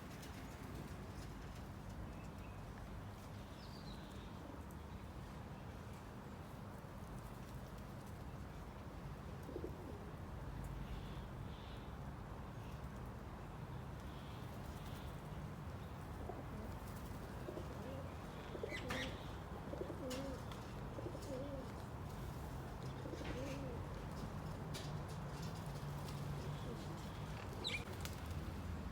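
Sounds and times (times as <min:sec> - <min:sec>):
low cooing bird calls: 0:15.8 - 0:21.9, 0:22.8 - 0:24.0, 0:26.1 - 0:28.1.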